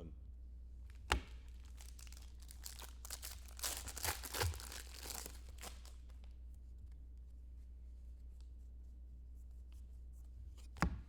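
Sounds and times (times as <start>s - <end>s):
foil wrapper tearing and crinkling: 1.0s - 6.2s.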